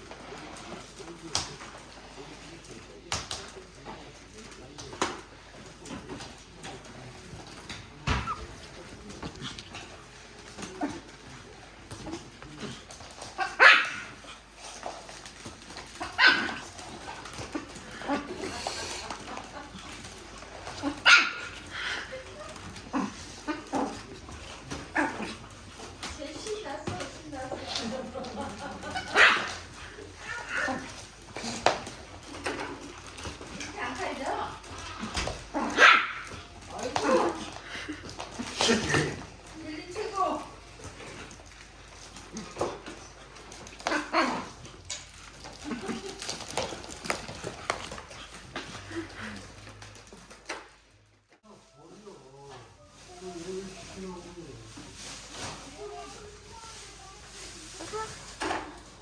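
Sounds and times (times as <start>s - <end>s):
small dog barking: 13.4s - 14.2s, 16.1s - 16.7s, 21.0s - 21.6s, 29.0s - 29.6s, 35.6s - 36.3s.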